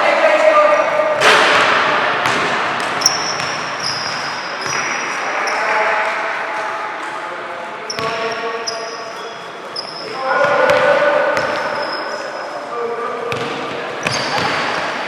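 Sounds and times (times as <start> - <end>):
hubbub of voices in hall: 0.0 - 15.0
basketball bouncing: 1.2 - 4.9, 13.3 - 14.8
sneakers squeaking: 2.2 - 5.7, 7.9 - 12.6, 13.3 - 15.0.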